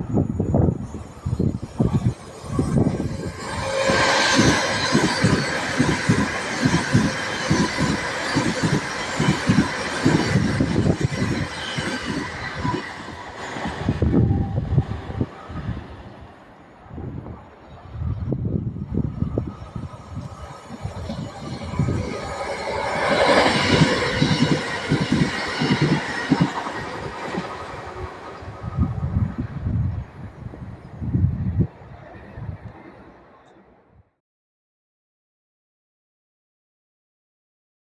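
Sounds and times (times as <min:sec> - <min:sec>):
train wheels clattering: 0:02.5 - 0:13.9, 0:20.7 - 0:28.5.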